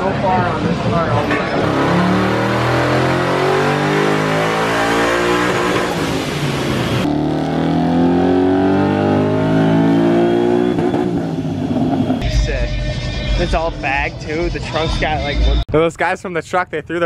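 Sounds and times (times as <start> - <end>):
car engine revving at full throttle: 0.0 - 12.2.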